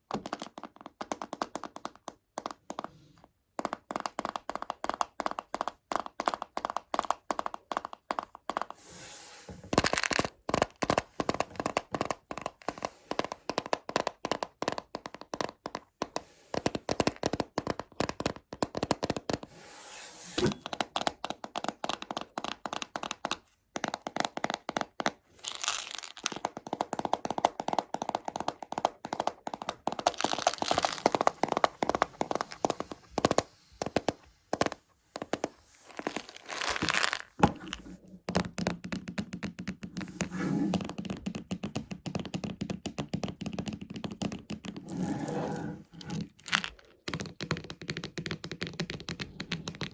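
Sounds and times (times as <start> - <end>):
scratching on plastic: 44.7 - 48.0.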